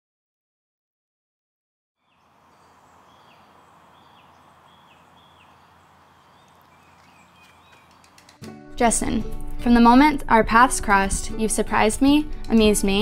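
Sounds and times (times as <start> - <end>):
bird calling: 2.0 - 8.4
steady low hiss: 2.1 - 8.3.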